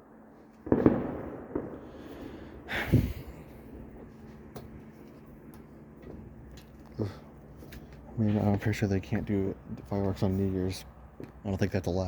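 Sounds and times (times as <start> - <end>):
fireworks bangs: 0.0 - 4.2
fireworks pops: 0.6 - 1.8.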